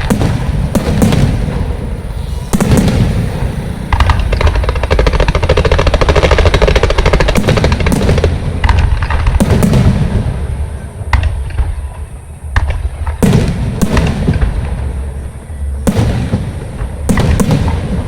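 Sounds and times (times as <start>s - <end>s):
fireworks banging and crackling: 0.0s - 18.0s.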